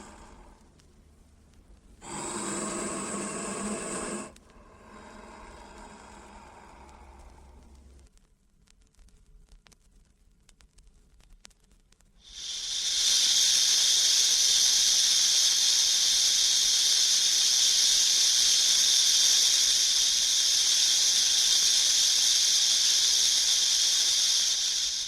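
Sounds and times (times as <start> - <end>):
snake hissing: 0.0 - 0.7, 2.0 - 8.0, 12.3 - 25.0.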